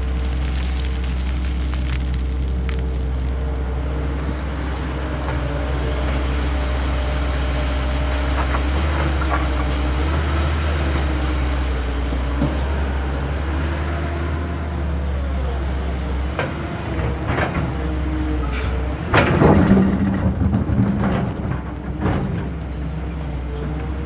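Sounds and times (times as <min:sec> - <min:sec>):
diesel excavator engine drone: 0:00.0 - 0:24.0.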